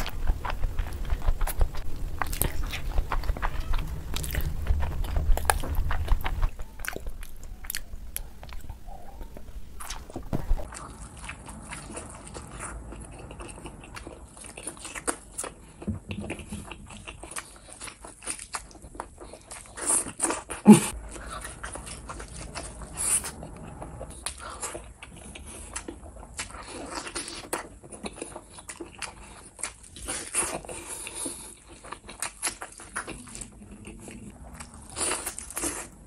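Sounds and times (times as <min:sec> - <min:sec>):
wet chewing: 0:00.0 - 0:36.0.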